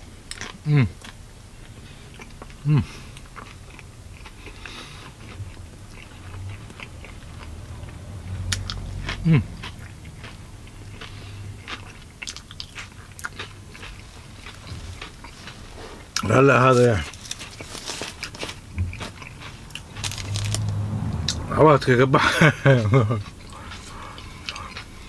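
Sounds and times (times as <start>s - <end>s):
person chewing with wet smacking: 0.3s - 21.4s, 22.8s - 25.0s.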